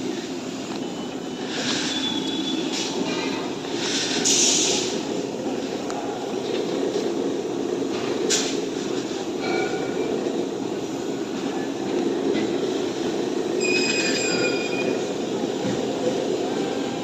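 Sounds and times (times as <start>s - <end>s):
high metallic squeal: 13.6s - 15.1s.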